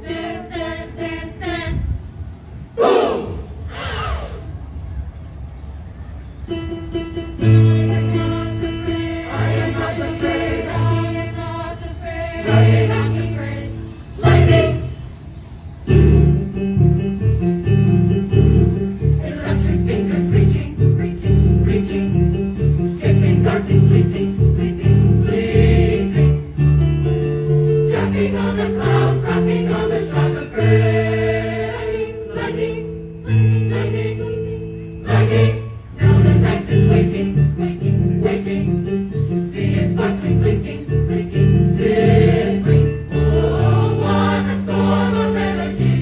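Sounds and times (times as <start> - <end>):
vocal ensemble singing: 0.0 - 2.0, 2.7 - 4.4, 7.4 - 15.2, 19.0 - 26.6, 27.6 - 46.0
repeated low bass notes: 15.9 - 31.3.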